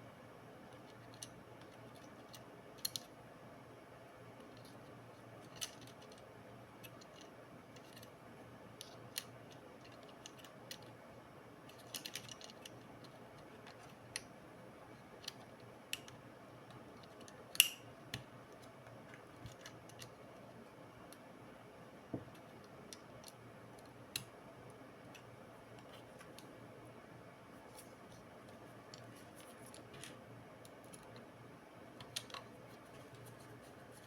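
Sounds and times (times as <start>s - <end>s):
plastic and metal parts clicking: 11.7s - 14.3s.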